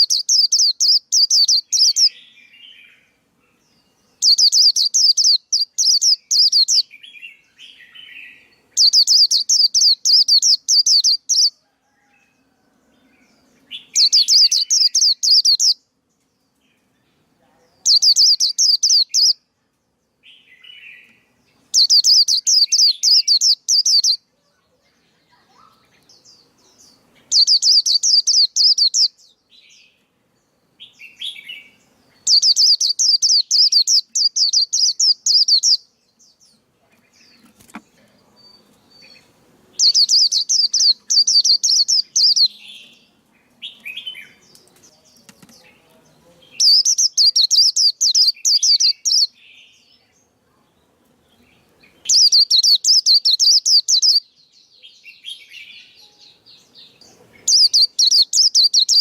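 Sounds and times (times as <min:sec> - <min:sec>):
bird high rapid chirping: 0:00.0 - 0:02.8, 0:04.1 - 0:11.6, 0:13.7 - 0:15.8, 0:17.9 - 0:19.4, 0:21.7 - 0:24.2, 0:27.2 - 0:29.2, 0:30.8 - 0:35.9, 0:38.6 - 0:43.0, 0:46.6 - 0:49.4, 0:52.0 - 0:54.3, 0:57.3 - 0:59.0.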